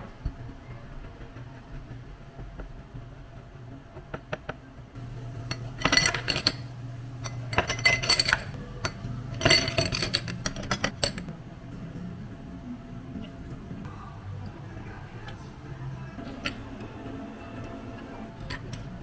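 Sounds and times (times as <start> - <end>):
glassware clinking: 5.0 - 11.3, 16.2 - 17.0
steady low hum: 5.0 - 19.0.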